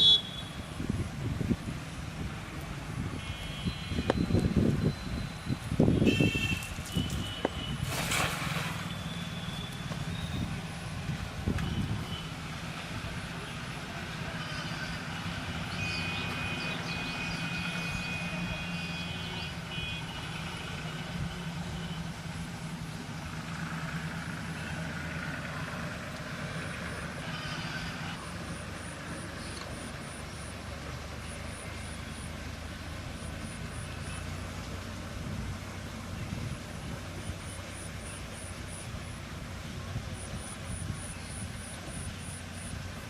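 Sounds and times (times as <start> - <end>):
low engine hum: 20.5 - 43.0.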